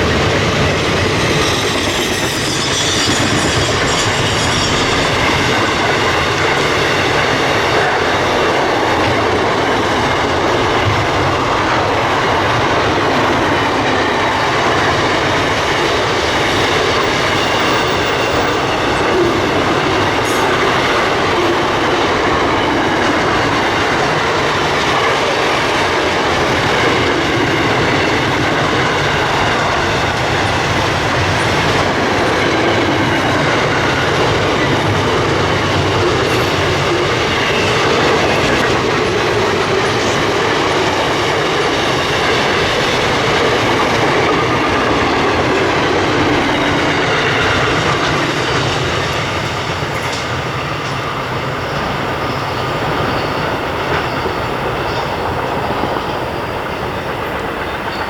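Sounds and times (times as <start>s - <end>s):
train wheels rumbling on rails: 0.0s - 58.0s
wheel squeal: 1.4s - 5.7s, 51.6s - 56.2s.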